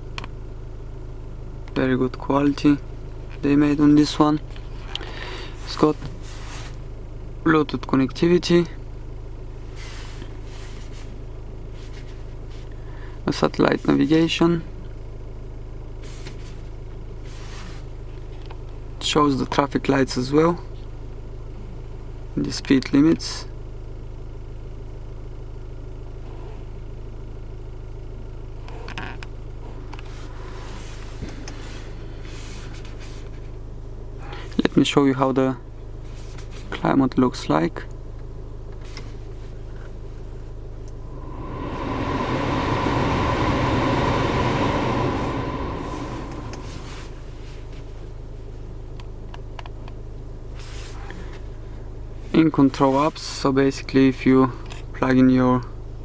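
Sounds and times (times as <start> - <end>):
car climate-control blower: 40.9 - 47.3
low cabin hum: 40.9 - 47.5.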